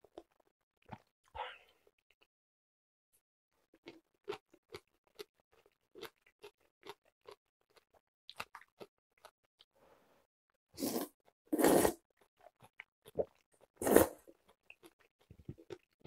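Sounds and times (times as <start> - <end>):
crunchy chewing with mouth closed: 3.8 - 9.4, 12.0 - 16.0.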